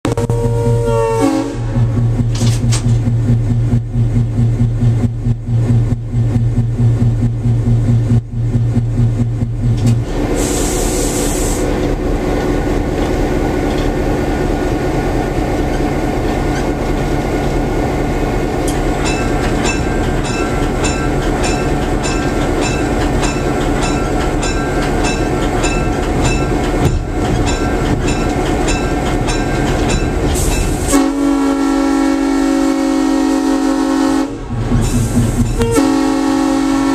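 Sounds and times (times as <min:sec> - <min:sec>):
locomotive air horn: 0:00.0 - 0:02.1, 0:30.8 - 0:34.6, 0:35.6 - 0:36.9
locomotive diesel engine: 0:00.0 - 0:36.9
air hiss: 0:10.4 - 0:11.7
locomotive bell ringing: 0:18.8 - 0:30.9, 0:35.4 - 0:36.0.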